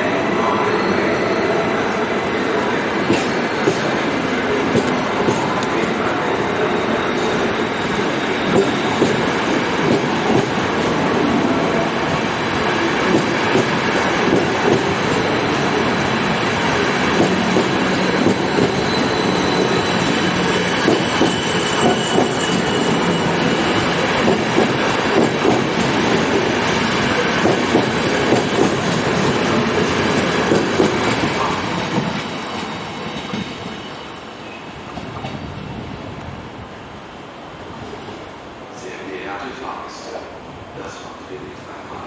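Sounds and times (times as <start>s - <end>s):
train wheels clattering over rails: 2.7s - 6.3s, 7.2s - 34.1s.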